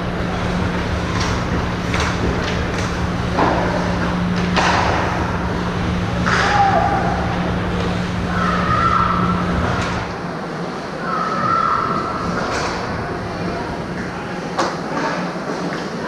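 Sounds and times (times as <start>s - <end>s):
low hum: 0.0s - 14.5s
sticks and puck knocking boards: 1.1s - 5.2s.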